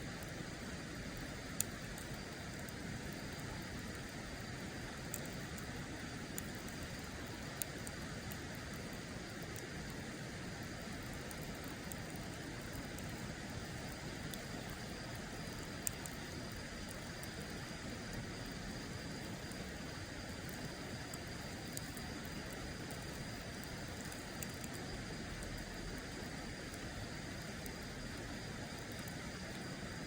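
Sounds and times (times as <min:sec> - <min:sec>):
wood fire crackling and popping: 0:00.1 - 0:30.0.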